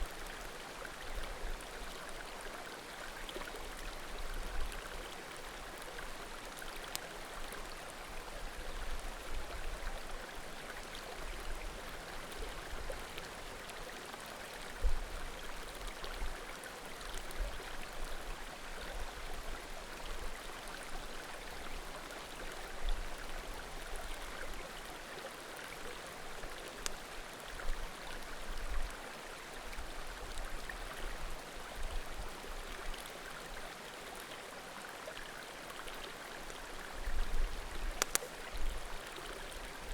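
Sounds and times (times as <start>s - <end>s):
creek babbling: 0.0s - 39.9s
firewood popping: 38.0s - 38.3s.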